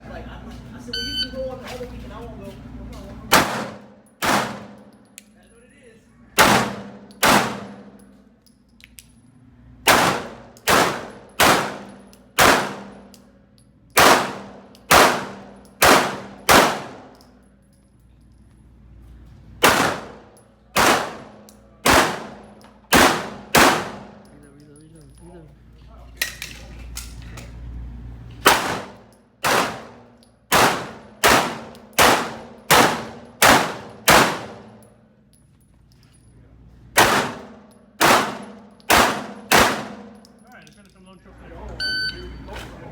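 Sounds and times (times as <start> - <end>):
pistol shots: 3.3 - 4.9, 6.4 - 8.0, 9.9 - 13.1, 14.0 - 17.2, 19.6 - 24.2, 28.4 - 34.8, 37.0 - 40.2.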